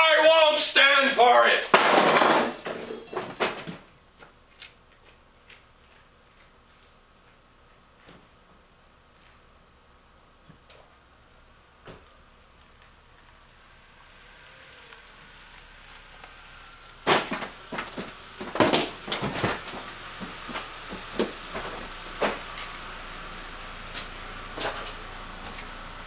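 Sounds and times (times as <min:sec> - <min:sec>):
faint steady hum: 0:00.0 - 0:26.0
wooden wall cracking and splintering: 0:17.0 - 0:22.6.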